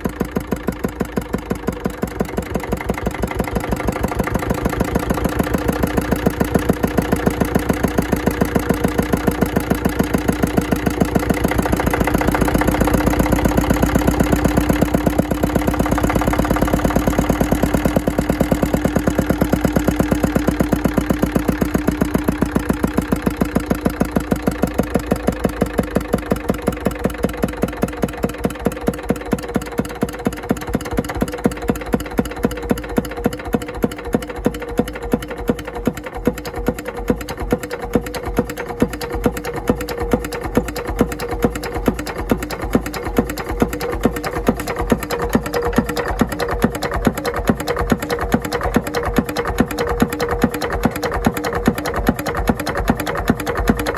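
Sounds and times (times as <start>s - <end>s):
single-cylinder diesel engine running: 0.0s - 53.9s.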